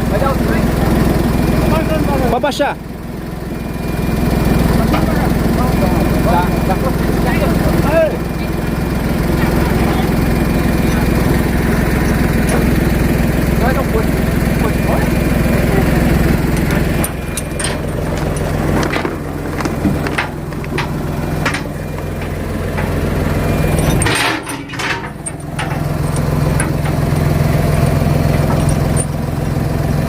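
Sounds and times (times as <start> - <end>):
engine idling: 0.0 - 30.0
sharp knocks and clanks: 10.8 - 13.0, 16.4 - 27.2, 28.2 - 29.2.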